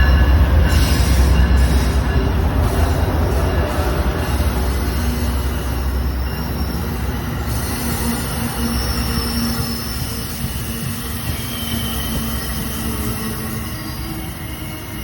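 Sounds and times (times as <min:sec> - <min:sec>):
train rumbling: 0:00.0 - 0:15.0
wheel and brake squeals: 0:00.1 - 0:15.0.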